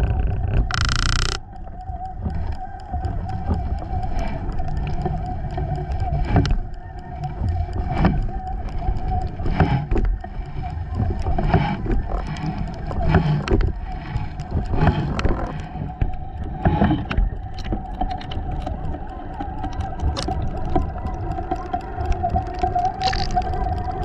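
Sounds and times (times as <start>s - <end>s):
boat motor whining and rumbling: 0.0s - 24.0s.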